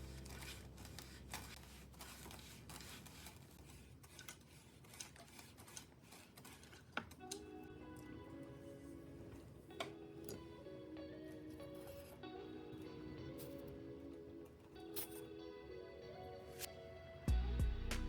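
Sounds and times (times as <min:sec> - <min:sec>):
small parts and tools clicking: 0:00.0 - 0:08.2, 0:14.4 - 0:15.2.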